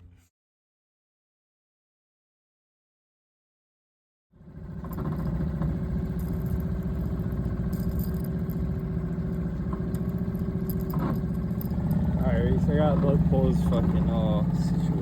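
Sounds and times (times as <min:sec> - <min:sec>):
outboard motor running: 0:04.4 - 0:15.0.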